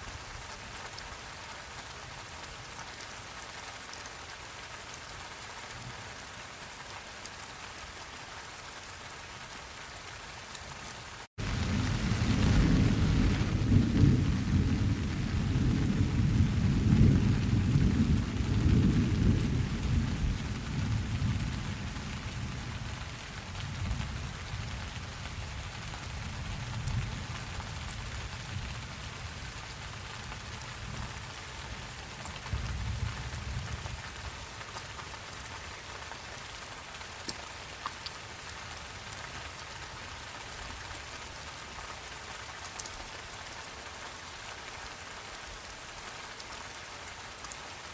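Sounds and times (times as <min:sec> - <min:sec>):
steady rain falling: 0:00.0 - 0:47.9
thunder rolling: 0:11.4 - 0:21.6.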